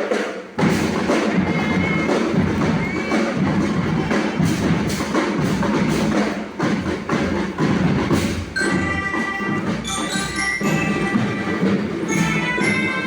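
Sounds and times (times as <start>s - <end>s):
drums beating march rhythm: 0.0s - 13.0s
marching band playing: 0.0s - 13.0s
melody on pitched instruments: 8.6s - 13.0s.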